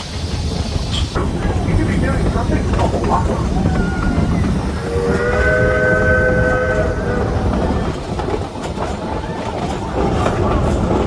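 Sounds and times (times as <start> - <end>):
train rumbling and clattering: 0.0 - 11.0
steam locomotive whistle: 3.6 - 7.8.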